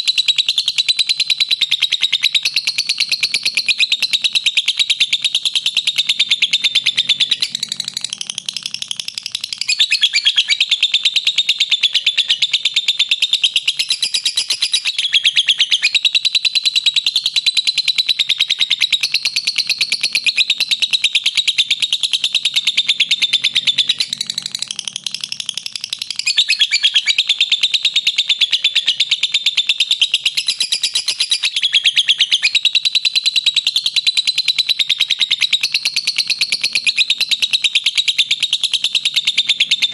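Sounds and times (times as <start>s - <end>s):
lovebird chattering trill: 0.0s - 39.9s.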